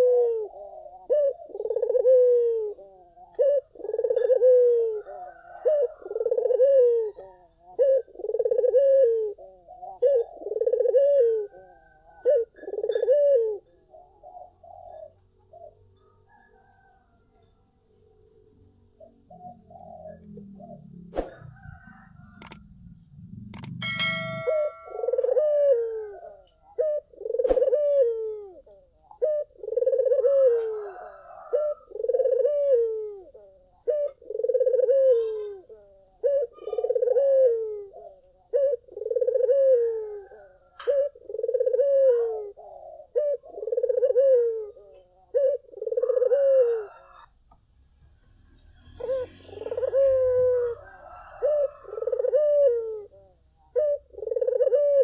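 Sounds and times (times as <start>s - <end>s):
dove cooing: 0.0s - 17.1s, 19.0s - 47.4s, 48.8s - 55.0s
sharp clicks: 22.4s - 22.7s, 23.5s - 24.5s.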